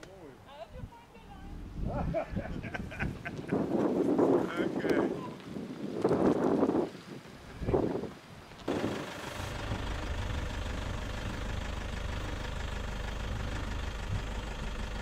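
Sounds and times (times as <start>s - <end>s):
vehicle engine idling: 8.7s - 15.0s.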